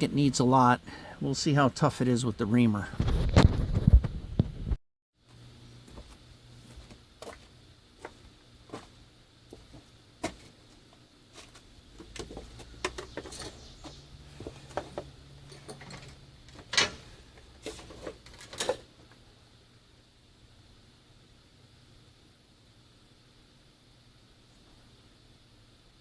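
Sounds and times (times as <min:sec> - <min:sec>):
hand tools clinking on metal: 0:15.4 - 0:17.1.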